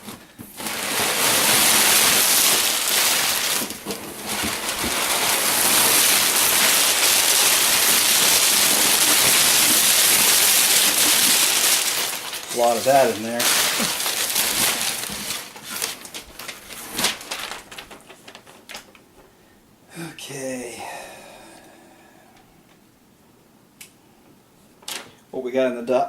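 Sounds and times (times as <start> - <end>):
packing material crinkling: 0.0 - 19.0, 24.8 - 25.2.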